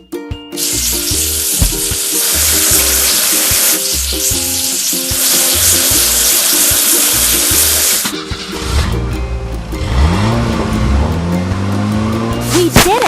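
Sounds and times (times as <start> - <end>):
bouncy background music: 0.0 - 13.0
cartoon water spray hiss: 0.6 - 8.8.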